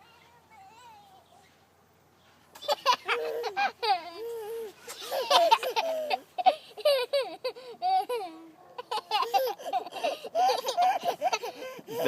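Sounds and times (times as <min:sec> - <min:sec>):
toddler squealing and babbling: 0:02.8 - 0:07.1.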